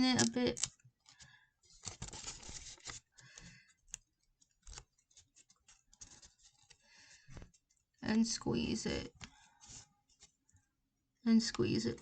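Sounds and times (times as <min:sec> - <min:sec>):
paper creasing crackles: 0:00.0 - 0:08.0
paper rustling and crinkling: 0:00.0 - 0:08.0, 0:09.2 - 0:10.7.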